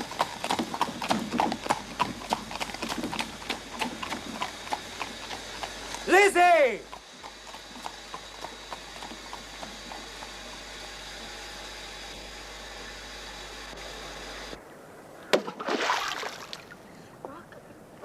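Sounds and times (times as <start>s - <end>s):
horse hooves clopping: 0.0s - 11.4s.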